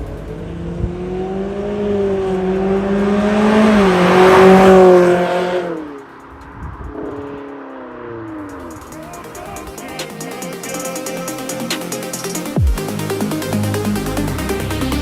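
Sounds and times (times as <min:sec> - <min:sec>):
car exhaust note: 0:00.0 - 0:09.8.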